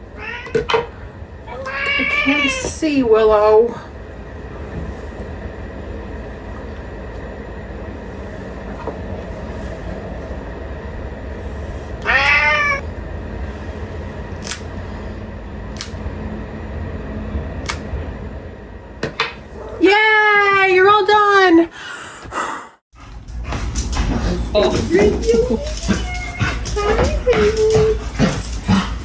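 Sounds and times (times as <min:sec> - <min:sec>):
cat meowing: 0:00.2 - 0:00.6, 0:01.5 - 0:02.7, 0:12.0 - 0:12.8, 0:25.2 - 0:28.1.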